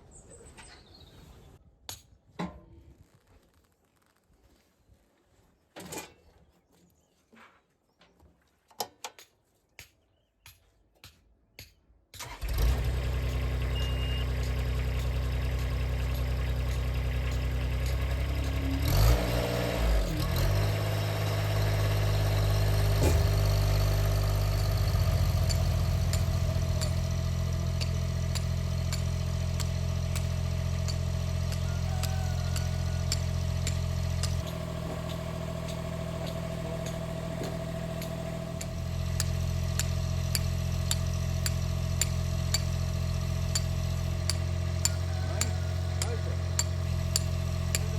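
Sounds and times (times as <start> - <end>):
engine starting and running: 12.2 - 47.9.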